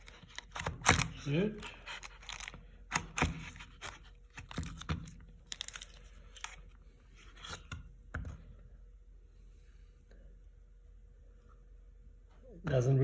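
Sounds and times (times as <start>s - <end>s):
lock cylinder clicking and scraping: 0.0s - 6.6s.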